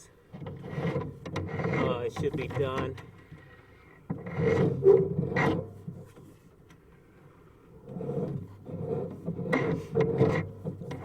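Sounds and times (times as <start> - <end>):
cable scraping inside pipe: 0.3 - 6.6, 7.3 - 11.0.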